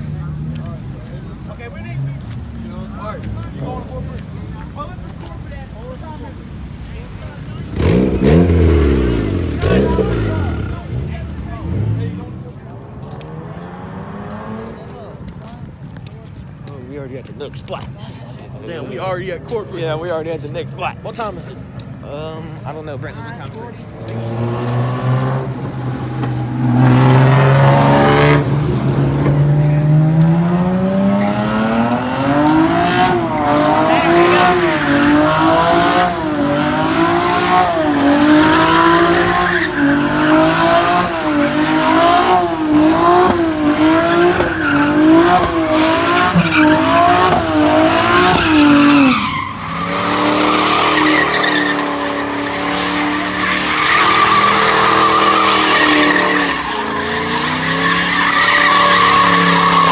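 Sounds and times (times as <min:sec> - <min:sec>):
car engine revving: 0:00.0 - 0:16.0, 0:22.7 - 0:59.9
tyres squealing: 0:23.6 - 0:59.9.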